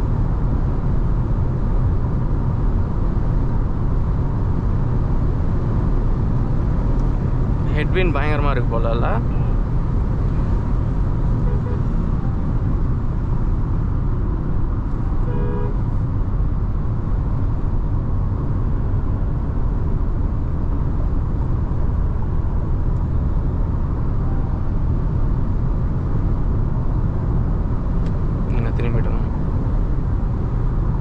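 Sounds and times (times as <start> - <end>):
road and wind noise inside car: 0.0 - 31.0
car horn toot: 11.2 - 12.4, 15.1 - 16.0.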